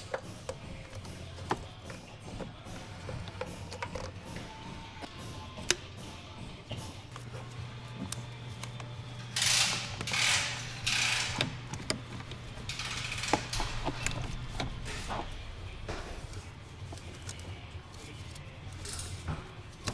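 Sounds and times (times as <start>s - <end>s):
steady low hum: 2.0s - 19.8s
hand tools clicking: 8.1s - 15.3s, 17.0s - 19.3s
ratchet rasping strokes: 9.4s - 11.6s, 12.6s - 14.6s.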